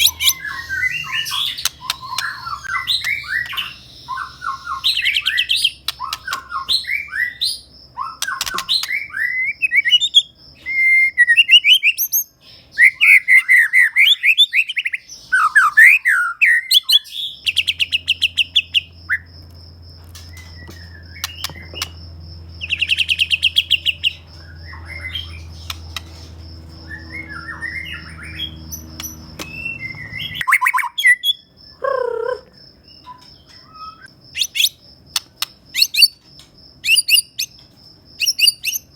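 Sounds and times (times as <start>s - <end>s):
bird singing whistled phrases: 0.0s - 7.4s, 26.8s - 32.4s.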